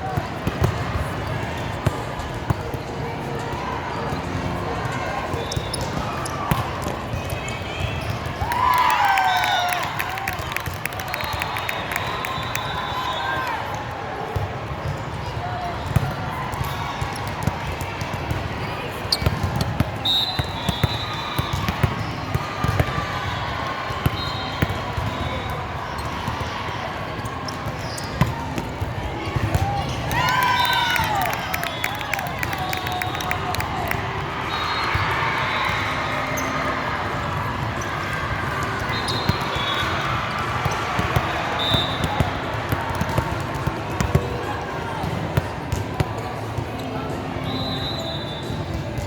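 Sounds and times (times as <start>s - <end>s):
hubbub of spectators: 0.0s - 49.0s
sneaker squeaks on floor: 5.3s - 8.3s, 19.1s - 22.8s, 27.6s - 28.3s, 38.8s - 40.0s.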